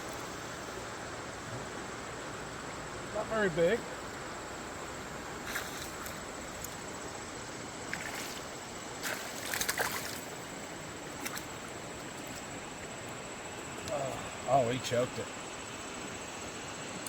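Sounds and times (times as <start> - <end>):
river flowing: 0.0 - 17.0
fish splashing at surface: 7.9 - 10.6.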